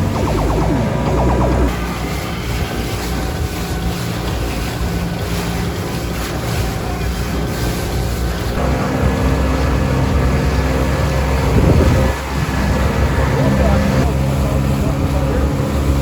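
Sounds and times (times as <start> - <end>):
outboard motor running: 0.0 - 16.0
wind on microphone: 11.0 - 12.6.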